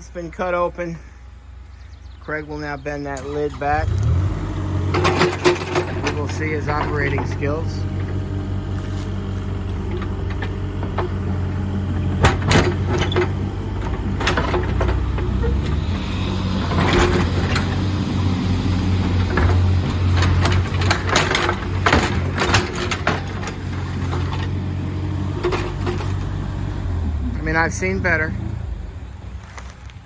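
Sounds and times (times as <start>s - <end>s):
excavator diesel engine running: 0.0s - 30.0s
metal clanks and scrapes: 4.9s - 11.4s, 12.0s - 24.6s, 25.2s - 26.4s.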